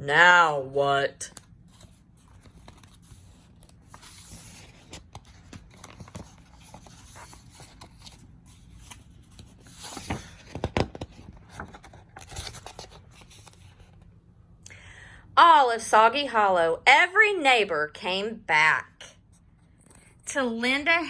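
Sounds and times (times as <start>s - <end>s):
book pages turning: 1.3s - 14.1s.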